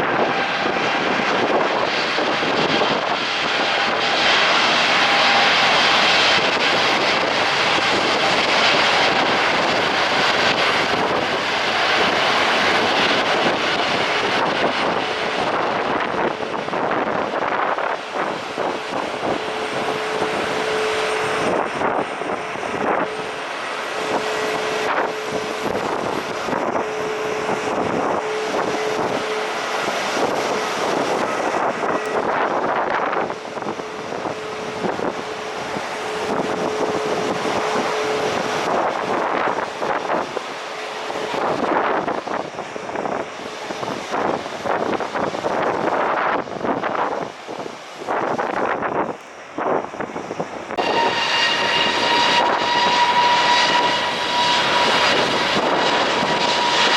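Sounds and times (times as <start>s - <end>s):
airliner engines running: 0.0s - 56.9s
wind buffeting microphone: 0.0s - 56.9s.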